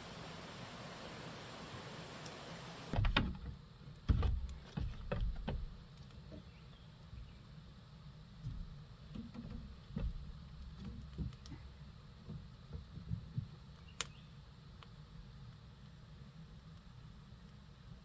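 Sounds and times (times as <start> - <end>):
dull low thuds and knocks: 3.0 - 6.5, 8.4 - 13.6.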